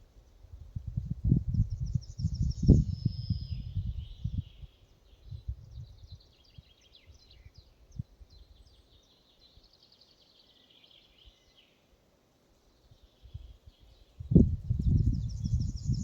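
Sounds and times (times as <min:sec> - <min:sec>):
wind rumble on microphone: 0:00.0 - 0:08.7, 0:12.9 - 0:16.0
small songbirds chirping: 0:00.0 - 0:16.0.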